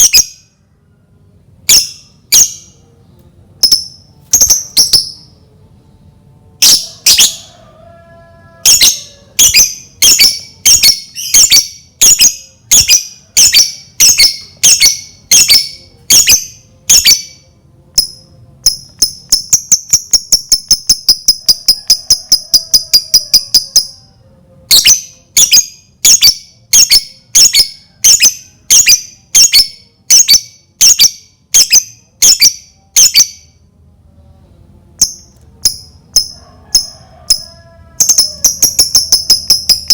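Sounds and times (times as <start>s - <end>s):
lovebird shrill chirps: 3.6s - 5.3s, 6.6s - 7.5s, 8.6s - 17.4s, 18.0s - 24.0s, 24.7s - 33.5s, 35.0s - 39.9s
lovebird chattering trill: 6.6s - 7.5s, 8.6s - 17.4s, 18.0s - 24.0s, 24.7s - 33.4s, 35.0s - 39.9s.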